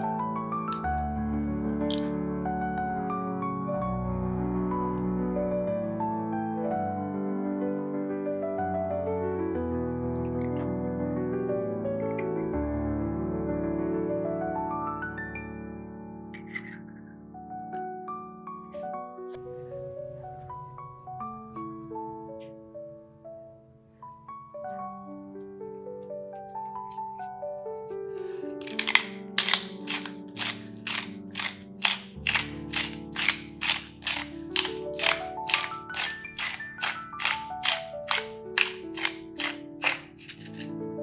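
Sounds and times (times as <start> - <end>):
slow gentle piano music: 0.0 - 41.0
crisp chopping strokes: 26.7 - 40.8.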